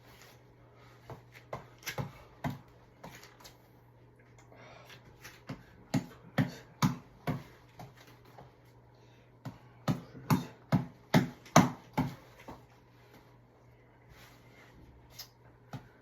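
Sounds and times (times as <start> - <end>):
reflex ball being punched: 5.5 - 8.0, 9.4 - 12.7.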